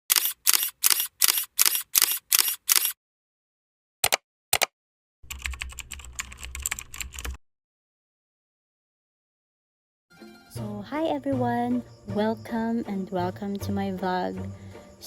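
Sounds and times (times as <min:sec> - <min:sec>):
sharp clicks: 0:00.1 - 0:03.0, 0:04.0 - 0:04.7.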